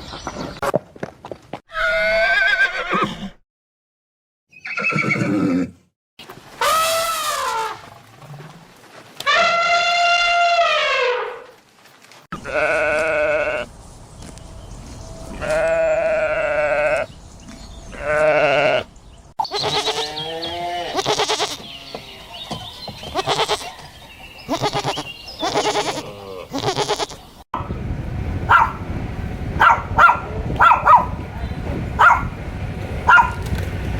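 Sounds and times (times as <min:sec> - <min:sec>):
livestock bleating: 0:12.4 - 0:13.7, 0:15.3 - 0:17.1, 0:17.9 - 0:22.1, 0:23.1 - 0:23.8, 0:24.5 - 0:27.3.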